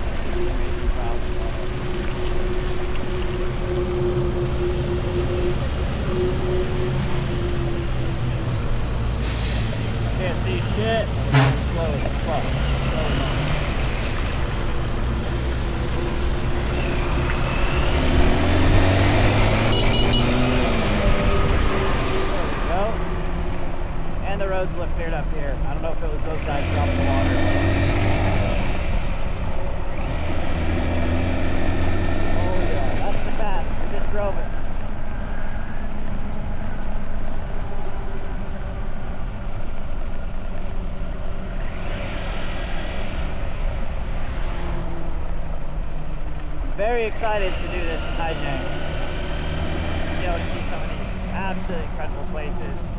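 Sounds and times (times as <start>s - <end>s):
road noise: 0.0s - 52.9s
motorbike engine: 10.0s - 24.8s, 26.1s - 36.7s, 40.7s - 52.9s.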